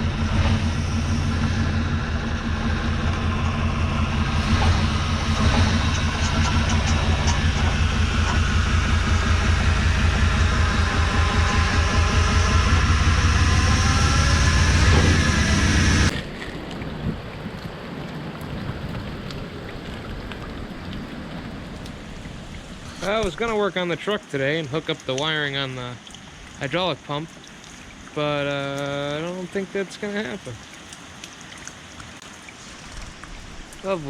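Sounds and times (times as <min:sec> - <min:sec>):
truck engine running: 0:00.0 - 0:16.1
rain hiss: 0:00.1 - 0:16.1, 0:20.7 - 0:34.0.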